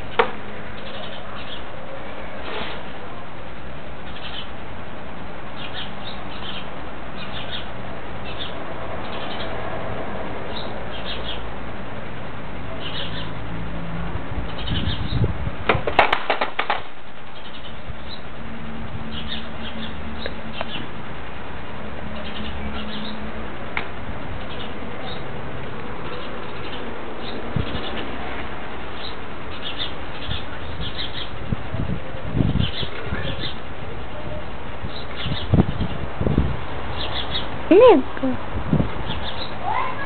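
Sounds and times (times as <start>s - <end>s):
small birds chirping: 0.0s - 1.9s, 4.0s - 4.6s, 5.5s - 9.6s, 10.5s - 11.5s, 12.7s - 13.4s, 14.5s - 15.3s, 17.3s - 18.4s, 19.0s - 21.0s, 22.1s - 23.4s, 24.2s - 31.6s, 32.4s - 36.1s, 36.8s - 38.4s, 39.0s - 40.0s.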